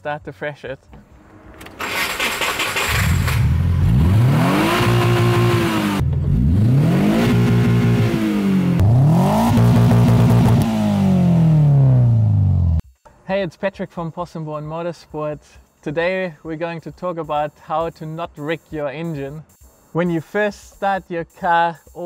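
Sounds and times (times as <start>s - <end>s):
car engine revving: 1.1s - 12.8s.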